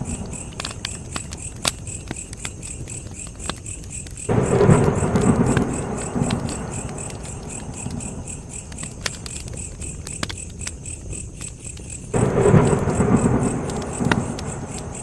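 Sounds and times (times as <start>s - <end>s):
campfire crackling and popping: 0.0s - 15.0s
crickets chirping: 0.0s - 15.0s
loud low rumble: 4.3s - 7.5s.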